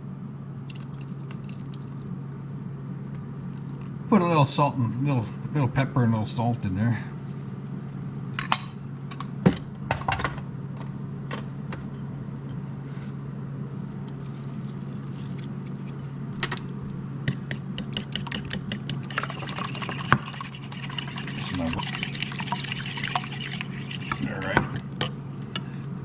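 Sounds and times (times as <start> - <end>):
steady low hum: 0.0 - 26.0
utensil clinking against a bowl: 15.8 - 25.2.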